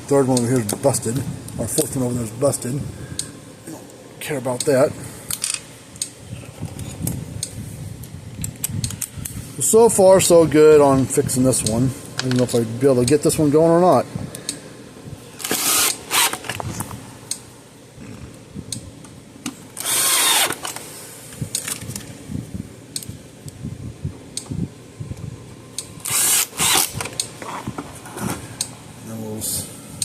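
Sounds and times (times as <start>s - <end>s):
power drill driving screws: 15.4s - 16.6s, 19.8s - 20.8s, 26.0s - 27.1s.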